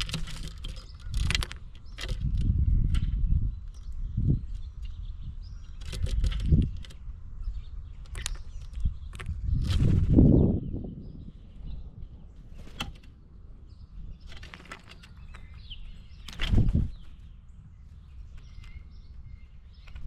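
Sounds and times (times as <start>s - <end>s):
faint bird chirps: 0.0s - 20.0s
small ticks: 8.0s - 9.4s
bird wings flapping: 9.1s - 10.3s, 14.2s - 17.3s, 19.8s - 20.0s.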